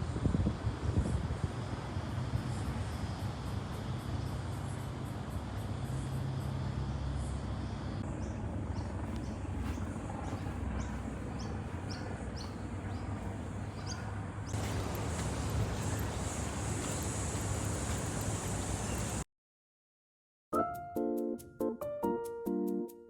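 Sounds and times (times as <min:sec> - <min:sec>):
low outdoor rumble: 0:00.0 - 0:19.2
bird chirping: 0:08.2 - 0:19.2.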